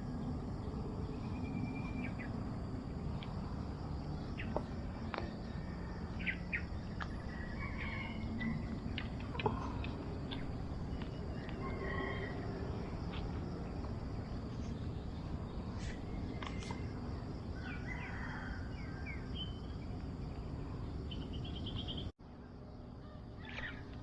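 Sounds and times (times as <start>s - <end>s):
low rumbling noise: 0.0s - 17.7s.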